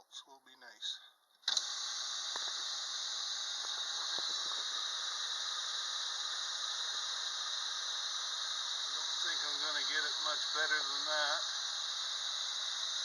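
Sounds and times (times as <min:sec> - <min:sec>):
lathe running with high hiss: 0:01.5 - 0:13.0.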